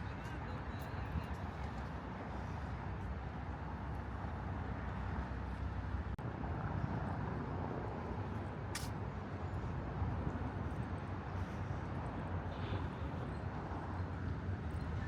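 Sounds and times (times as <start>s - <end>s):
low city rumble: 0.0s - 15.0s.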